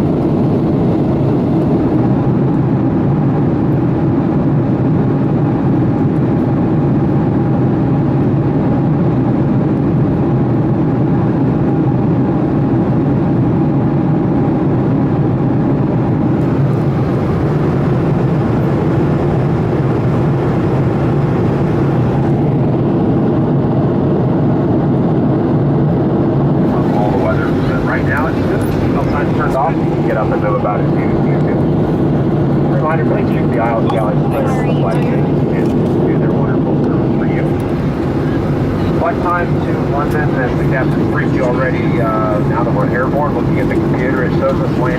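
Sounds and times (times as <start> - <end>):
aircraft cabin engine roar: 0.0 - 44.9
faint steady hum: 26.6 - 44.9.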